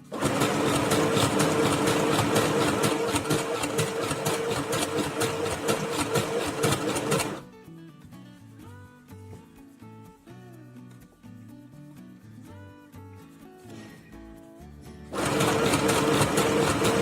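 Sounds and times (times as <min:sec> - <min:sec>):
sewing machine running: 0:00.0 - 0:07.4, 0:15.1 - 0:17.0.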